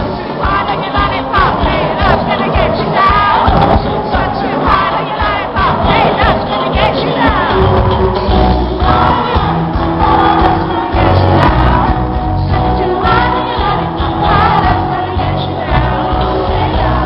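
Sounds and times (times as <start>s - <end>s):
live band with heavy bass: 0.0s - 17.0s
man singing: 0.0s - 17.0s.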